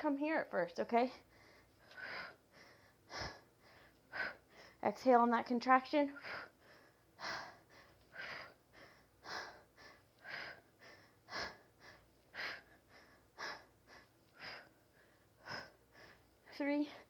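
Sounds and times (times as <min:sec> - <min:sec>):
woman breathing hard: 0:01.2 - 0:04.8, 0:06.2 - 0:17.0.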